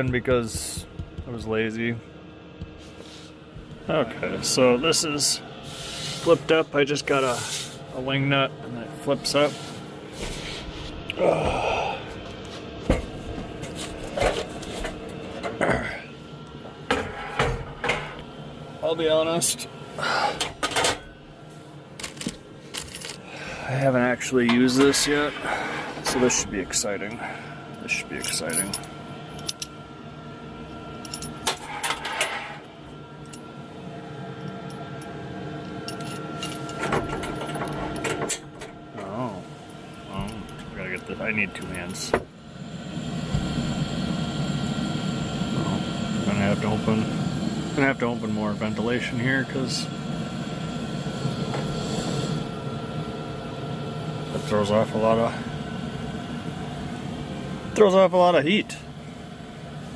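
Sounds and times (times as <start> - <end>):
heater humming: 0.0 - 59.9.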